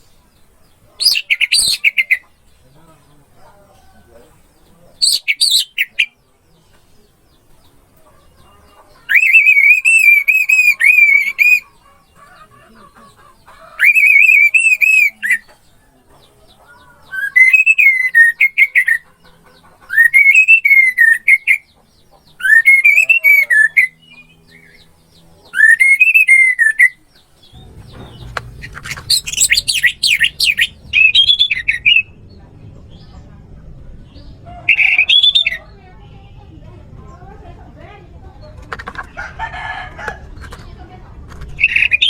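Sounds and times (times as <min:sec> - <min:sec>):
thrush whistling song: 0:05.0 - 0:06.2, 0:09.1 - 0:11.7, 0:13.8 - 0:15.5, 0:17.1 - 0:19.0, 0:19.9 - 0:21.7, 0:22.4 - 0:24.8, 0:25.6 - 0:32.2, 0:34.6 - 0:35.6, 0:41.6 - 0:42.0.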